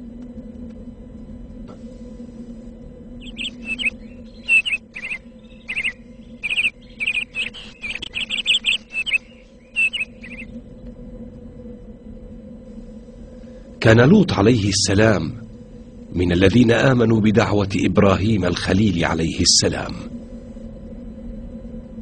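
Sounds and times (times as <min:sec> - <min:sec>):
steady low hum: 0:00.0 - 0:22.0
birds chirping: 0:03.2 - 0:10.9.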